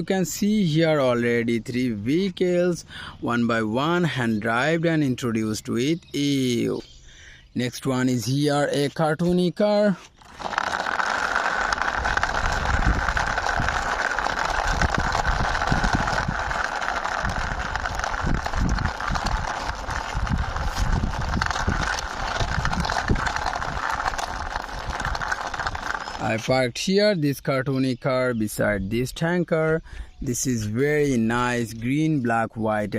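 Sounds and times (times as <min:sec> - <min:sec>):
toy car wheels rolling: 0:09.2 - 0:26.9.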